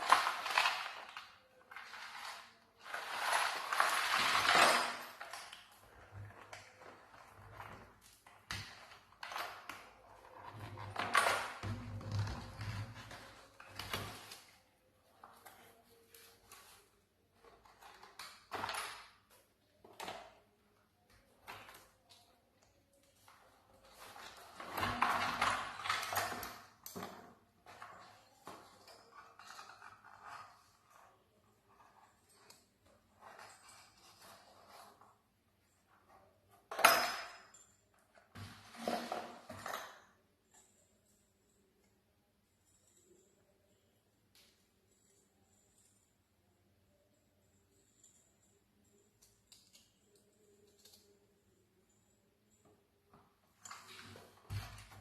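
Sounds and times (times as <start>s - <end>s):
small objects knocking and clicking: 0.0s - 14.6s.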